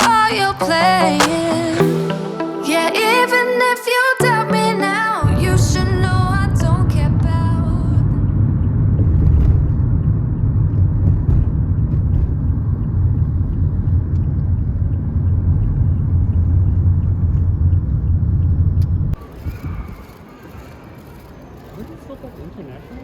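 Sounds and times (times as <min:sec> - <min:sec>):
moving vehicle rumble: 0:06.7 - 0:19.2.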